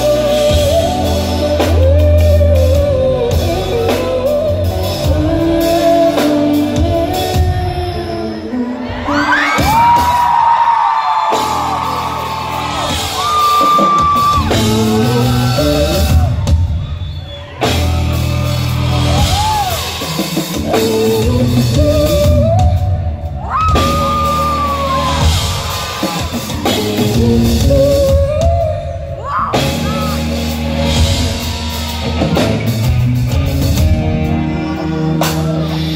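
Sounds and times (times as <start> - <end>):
female singer: 0.0 - 10.0
bass and drums: 0.0 - 35.9.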